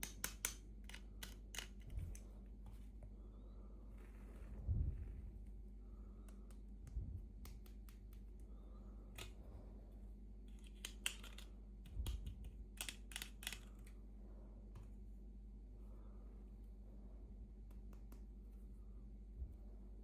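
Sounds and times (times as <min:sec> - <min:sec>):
plastic toy pieces clicking: 0:00.0 - 0:01.9, 0:10.6 - 0:13.9
low steady hum: 0:00.0 - 0:20.0.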